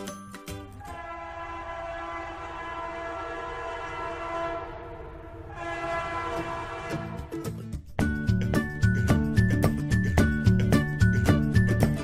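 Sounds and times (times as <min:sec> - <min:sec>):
train horn blast: 0:00.8 - 0:07.6
train rumbling: 0:00.8 - 0:12.0.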